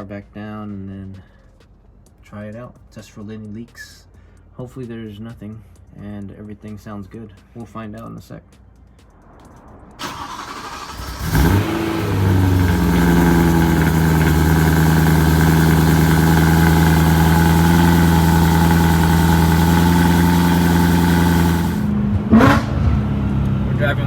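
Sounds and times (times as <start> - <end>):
car engine starting and idling: 9.4 - 24.0.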